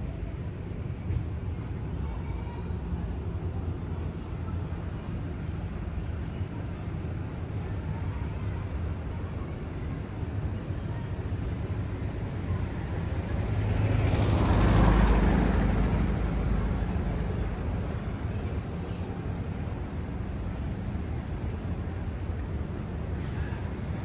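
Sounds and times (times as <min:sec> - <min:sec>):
vehicle driving past: 0:13.3 - 0:18.2
bird chirping: 0:18.6 - 0:20.4.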